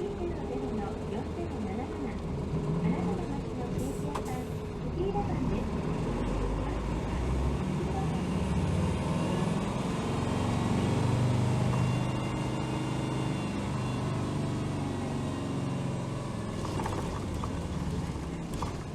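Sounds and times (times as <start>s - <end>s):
bus diesel engine pulling: 0.0s - 18.9s
road noise: 0.0s - 18.9s.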